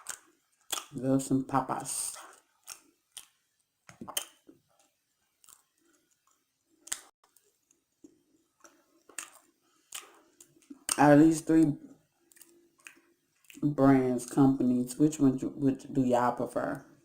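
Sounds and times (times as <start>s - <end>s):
chewing crunchy fries: 0.0s - 1.0s, 1.8s - 14.4s
wet mouth clicks: 2.7s - 4.5s.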